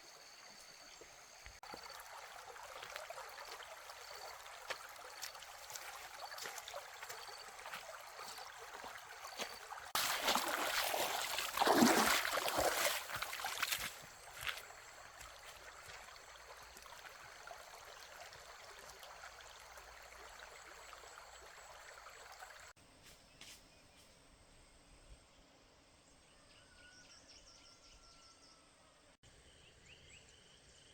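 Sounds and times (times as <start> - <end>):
outdoor background noise: 0.0 - 30.9
running water rushing: 0.9 - 22.7.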